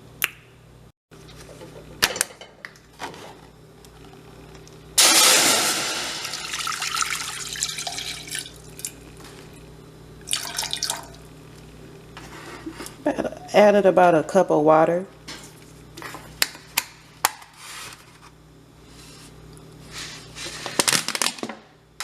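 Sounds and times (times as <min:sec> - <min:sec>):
water pouring into a saucepan: 0:05.0 - 0:08.6.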